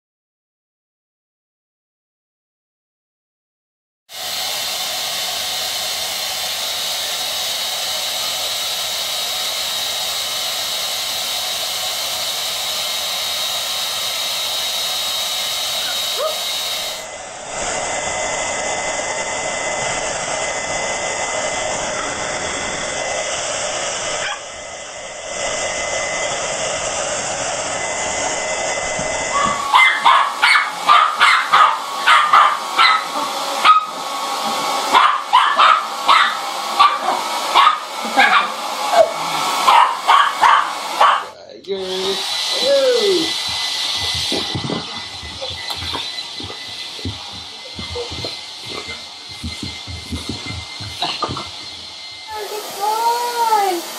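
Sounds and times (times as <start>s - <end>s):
hair dryer blowing: 4.1s - 53.9s
dog barking: 15.8s - 16.5s, 24.2s - 24.5s, 29.3s - 34.1s, 34.8s - 41.4s.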